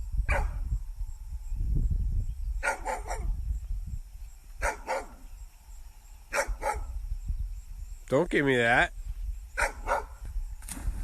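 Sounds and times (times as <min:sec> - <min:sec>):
dog barking: 0:00.3 - 0:00.6, 0:02.6 - 0:03.4, 0:04.6 - 0:05.2, 0:06.3 - 0:06.9, 0:09.6 - 0:10.2.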